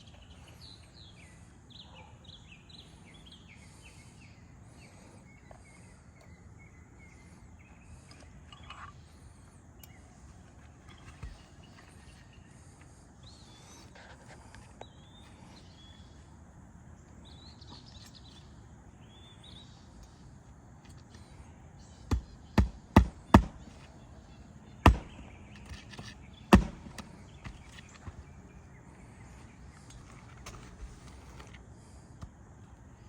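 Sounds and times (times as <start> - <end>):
faint bird chirps: 0.0 - 22.6
hammering nails into roof shingle: 22.0 - 23.9, 24.8 - 28.2.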